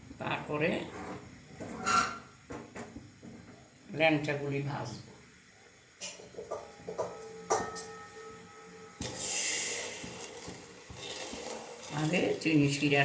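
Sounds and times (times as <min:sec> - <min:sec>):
metal kitchenware knocking: 0:06.4 - 0:08.0
high hiss: 0:09.0 - 0:10.8.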